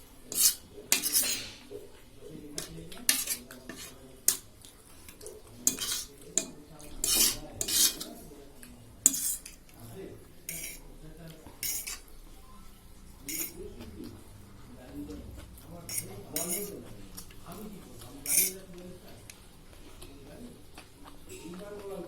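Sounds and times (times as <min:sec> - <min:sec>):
cutlery clinking and scraping on plate: 0:00.3 - 0:01.9, 0:02.5 - 0:09.8, 0:10.5 - 0:12.1, 0:13.2 - 0:14.0, 0:15.9 - 0:19.4.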